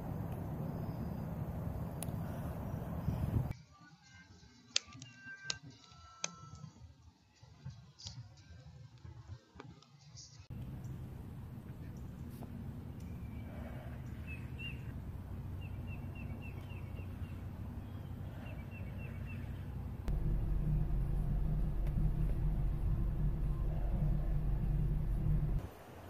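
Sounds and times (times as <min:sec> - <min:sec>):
low steady hum: 0:00.0 - 0:03.5, 0:10.5 - 0:25.9
car cabin rumble: 0:20.1 - 0:25.6.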